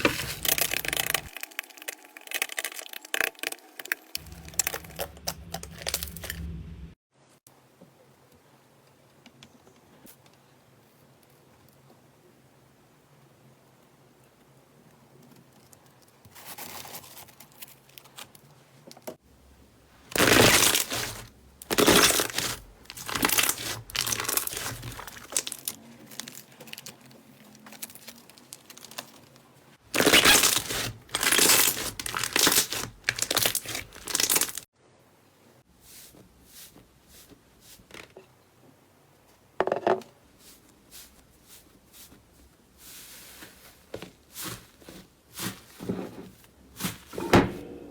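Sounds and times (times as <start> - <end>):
slime squeezed and stretched: 0.0 - 6.3, 20.1 - 26.9, 30.0 - 34.6.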